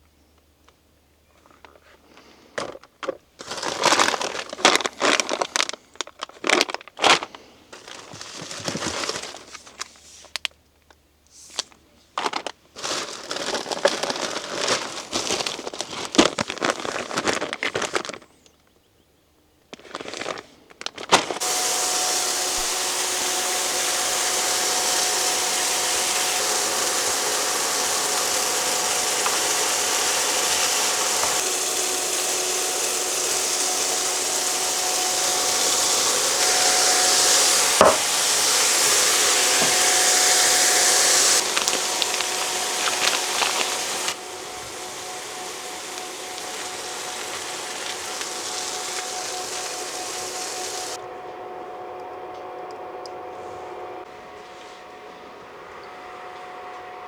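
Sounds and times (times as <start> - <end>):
packaging crinkling and rustling: 2.6 - 10.6, 11.5 - 18.6, 19.7 - 21.4, 41.4 - 49.2
steady loud hiss: 21.4 - 51.0.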